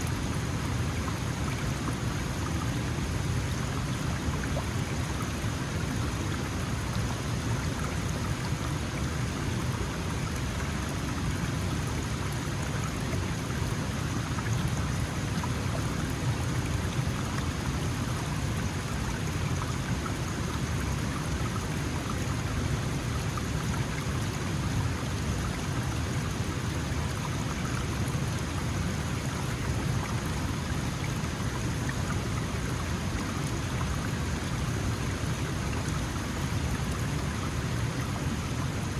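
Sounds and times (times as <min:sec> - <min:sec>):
stream water over stones: 0:00.0 - 0:38.9.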